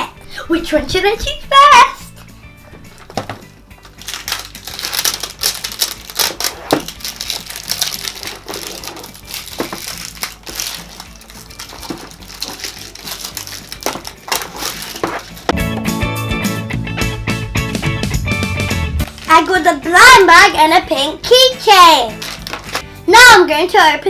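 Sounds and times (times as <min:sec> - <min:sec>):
plastic packaging crinkling: 0:02.9 - 0:15.6, 0:19.0 - 0:20.2, 0:22.1 - 0:22.8.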